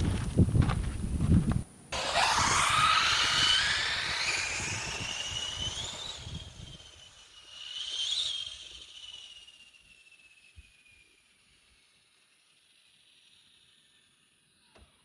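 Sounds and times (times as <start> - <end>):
wind rumble on microphone: 0.0 - 1.7, 2.4 - 6.8
rc car motor whine: 0.0 - 15.0.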